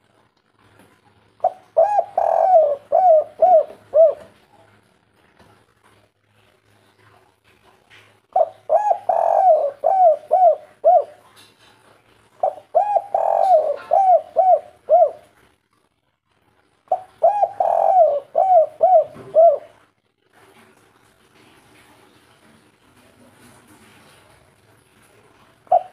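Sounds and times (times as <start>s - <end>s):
dove cooing: 1.4s - 4.4s, 8.3s - 11.4s, 12.4s - 15.4s, 16.9s - 19.9s, 25.7s - 25.9s.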